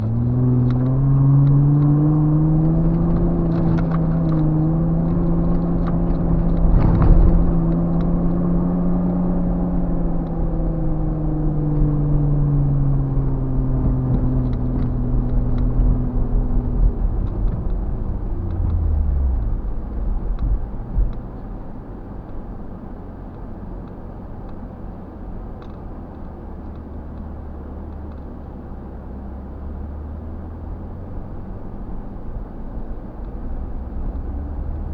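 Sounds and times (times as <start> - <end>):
off-road engine pulling under load: 0.0 - 21.9.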